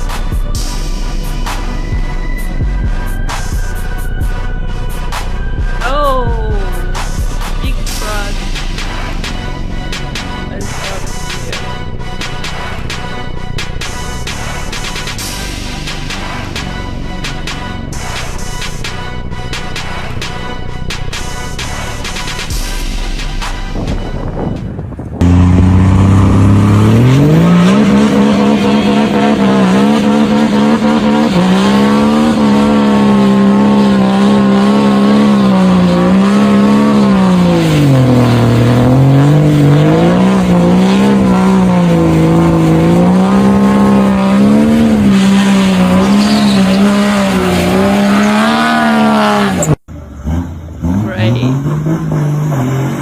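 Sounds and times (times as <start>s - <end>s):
truck engine revving: 0.0s - 53.0s.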